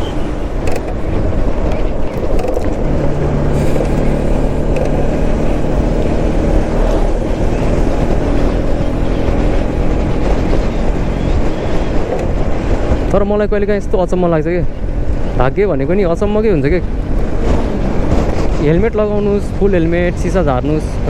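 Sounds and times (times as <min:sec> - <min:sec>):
motorcycle engine running: 0:00.0 - 0:13.3.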